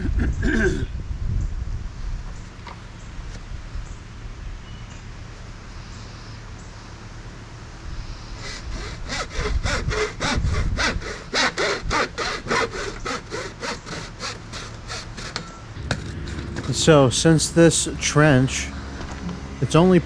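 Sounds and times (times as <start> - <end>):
hand saw cutting: 8.4 - 16.2.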